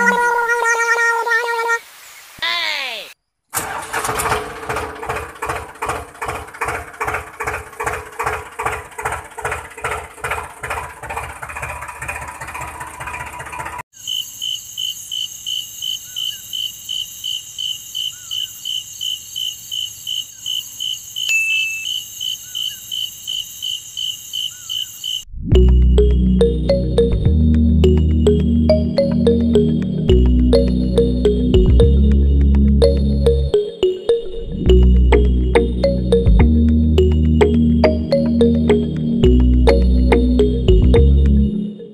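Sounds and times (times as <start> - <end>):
rhythmic engine-like chugging: 4.2 - 13.8
cricket chirping: 13.9 - 25.3.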